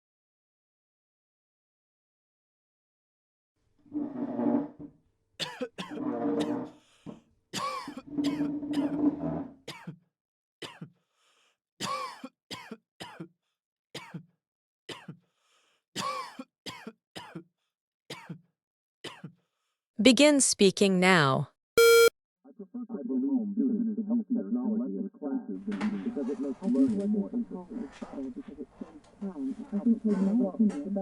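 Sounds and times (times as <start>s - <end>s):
people coughing: 5.4s - 6.6s, 7.6s - 8.9s, 11.8s - 13.3s, 16.0s - 17.4s.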